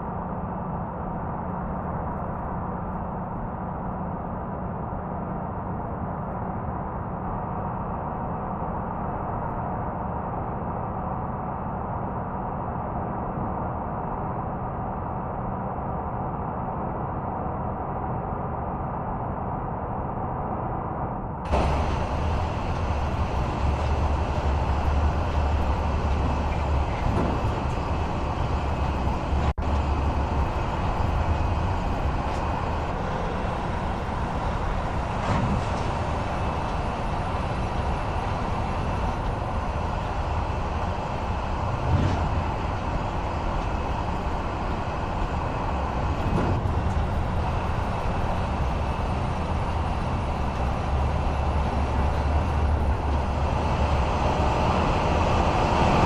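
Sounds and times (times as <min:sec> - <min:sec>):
vehicle engine rumble: 0:00.0 - 0:56.0
road noise: 0:21.5 - 0:56.0.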